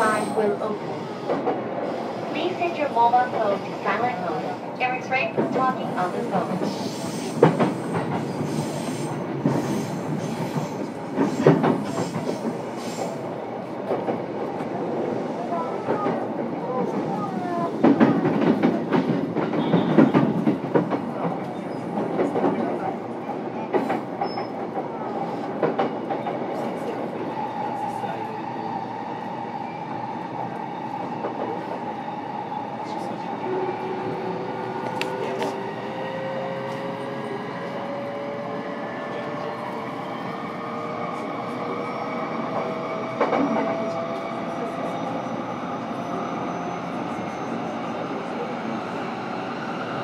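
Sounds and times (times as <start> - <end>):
train interior rolling rumble: 0.0 - 50.0
rail-joint clacks: 6.5 - 13.1.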